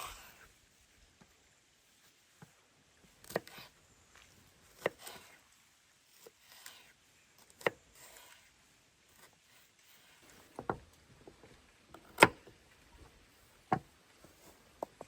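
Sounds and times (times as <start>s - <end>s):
knife scraping board: 3.2s - 3.7s, 4.7s - 5.4s, 6.1s - 7.0s, 7.6s - 8.5s, 9.1s - 10.6s.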